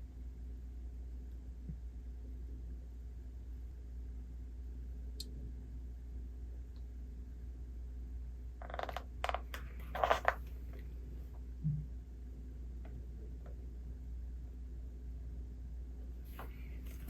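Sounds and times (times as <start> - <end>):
low room hum: 0.0 - 17.0
paper page rustling: 16.3 - 17.0.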